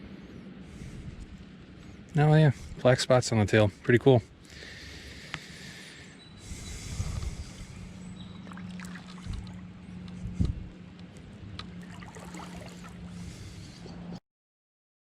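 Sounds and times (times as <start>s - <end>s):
steady low hum: 0.0s - 14.2s
water trickling and dripping: 8.3s - 9.7s, 11.6s - 13.1s.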